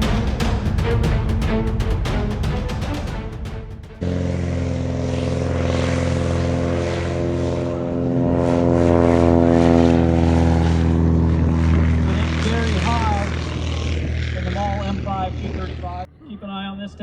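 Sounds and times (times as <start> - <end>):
intro music: 0.0 - 6.6
airplane engine and propeller: 0.0 - 17.0.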